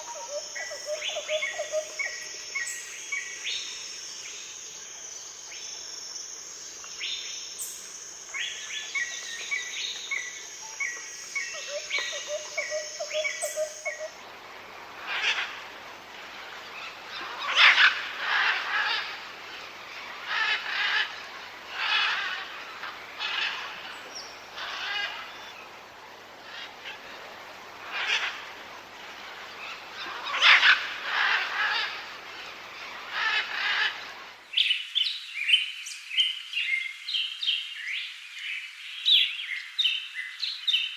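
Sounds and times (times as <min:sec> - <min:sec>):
insect hum: 0:00.0 - 0:40.9.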